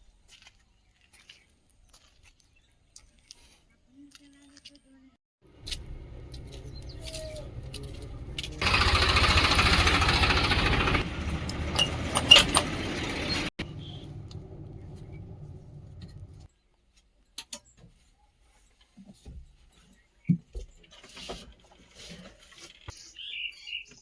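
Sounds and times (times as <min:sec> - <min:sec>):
heavy machinery diesel engine: 0:05.4 - 0:16.5.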